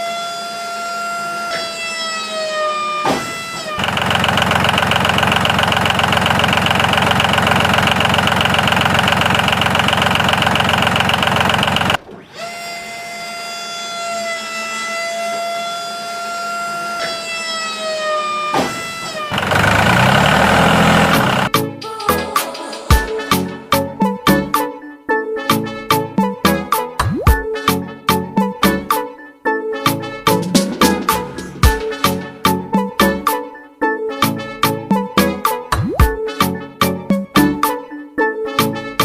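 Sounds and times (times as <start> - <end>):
small electric motor whining: 3.7 - 21.5.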